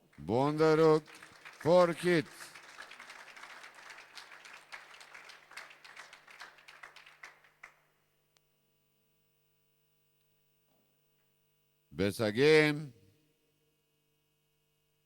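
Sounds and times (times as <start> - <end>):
audience applauding: 0.0 - 7.8
faint electrical hum: 0.0 - 15.0.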